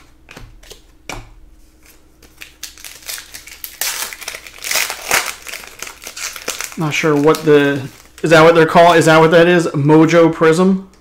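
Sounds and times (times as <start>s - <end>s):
wrapper crinkling: 1.8s - 8.7s.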